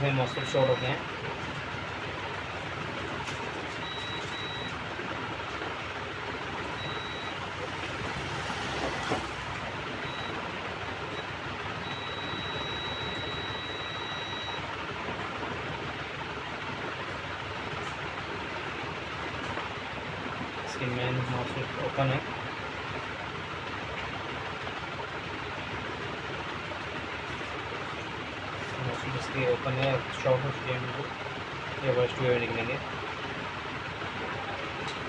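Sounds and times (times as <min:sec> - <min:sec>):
multimeter buzzer beeps: 0:03.8 - 0:04.8, 0:06.8 - 0:07.4, 0:10.0 - 0:10.4, 0:11.1 - 0:14.6.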